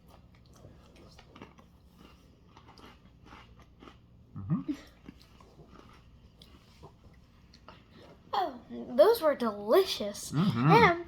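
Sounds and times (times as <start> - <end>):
person chewing crunchy cookies: 0.0 - 8.3.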